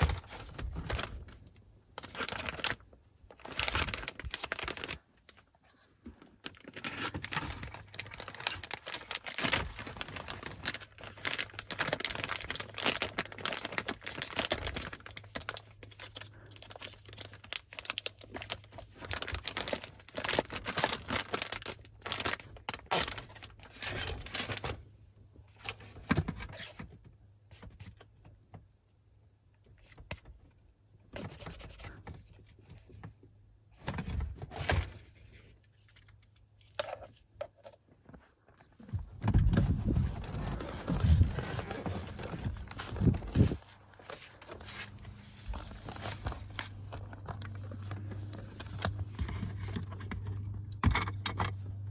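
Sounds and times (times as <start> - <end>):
plastic packaging crinkling: 0.0 - 5.5, 6.3 - 24.7, 39.2 - 51.9
faint low hum: 38.9 - 51.9.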